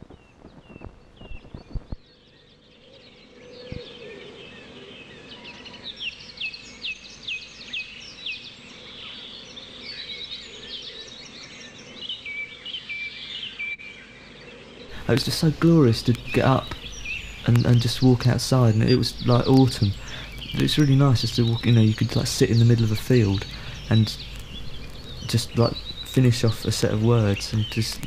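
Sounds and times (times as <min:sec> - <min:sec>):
birds chirping: 0:00.0 - 0:28.0
outdoor background hiss: 0:00.0 - 0:28.0
sharp clicks: 0:14.9 - 0:28.0.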